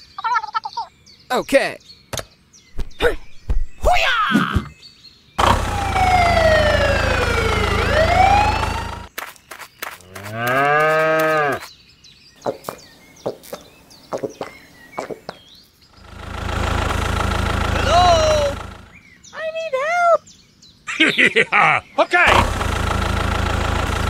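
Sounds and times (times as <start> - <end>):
tractor engine hum: 5.4 - 9.1, 15.9 - 19.2, 22.3 - 24.0
cow mooing: 10.2 - 11.6.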